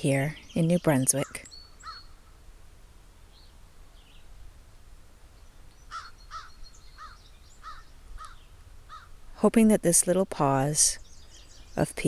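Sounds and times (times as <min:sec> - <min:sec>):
faint high bird chirps: 0:00.0 - 0:02.4, 0:05.3 - 0:09.1.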